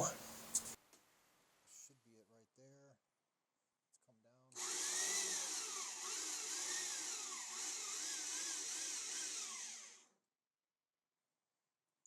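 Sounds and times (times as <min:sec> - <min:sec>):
milling machine spindle whine: 0:04.6 - 0:10.0.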